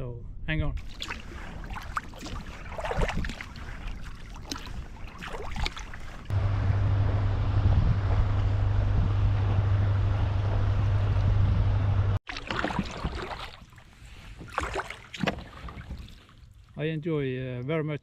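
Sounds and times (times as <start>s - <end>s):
wind and water noise: 0.6s - 6.3s, 7.5s - 17.0s
water splashing against kayak: 0.8s - 6.3s, 12.2s - 16.7s
constant low hum: 3.4s - 12.2s.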